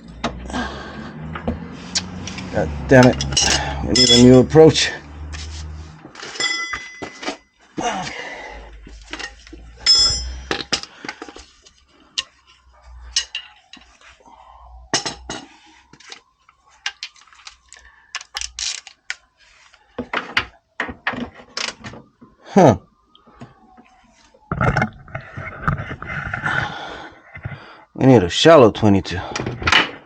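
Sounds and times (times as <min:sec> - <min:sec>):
metal hand tools clinking: 0:03.0 - 0:04.4, 0:06.3 - 0:07.4, 0:09.1 - 0:10.9, 0:13.1 - 0:13.8.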